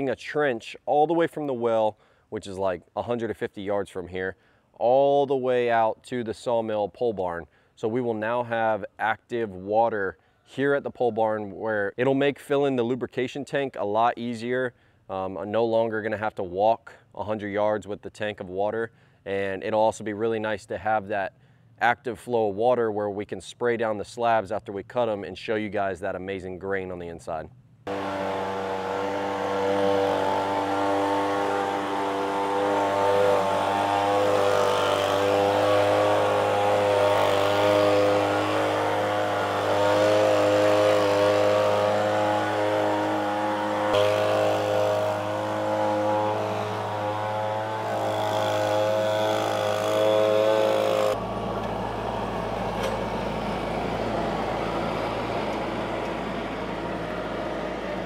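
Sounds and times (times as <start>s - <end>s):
rough engine drone: 27.8s - 58.0s
machine engine running: 27.9s - 58.0s.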